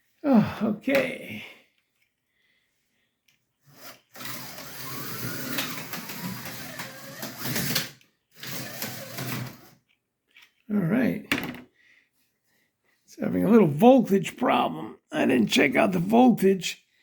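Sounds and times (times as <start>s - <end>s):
slot car motor whirring: 4.0s - 9.7s.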